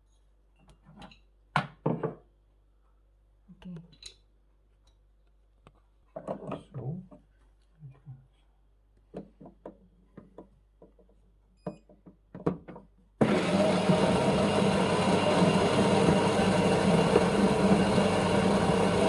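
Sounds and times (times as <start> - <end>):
coffee grinder grinding beans: 13.2 - 19.0.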